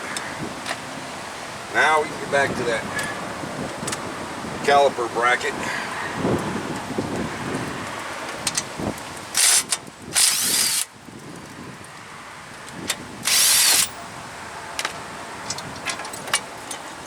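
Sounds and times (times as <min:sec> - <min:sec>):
power tool bursts: 0:09.4 - 0:10.9, 0:13.2 - 0:14.0.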